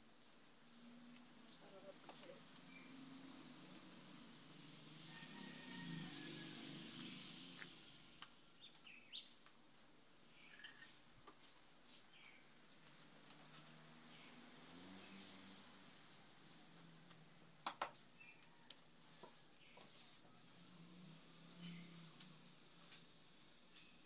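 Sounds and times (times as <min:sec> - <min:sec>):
faint bird chirping: 0:06.9 - 0:12.9.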